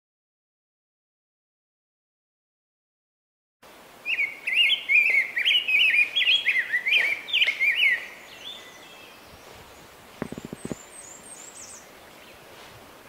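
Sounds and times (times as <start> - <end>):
bird singing a rapid warble: 4.0 - 12.5.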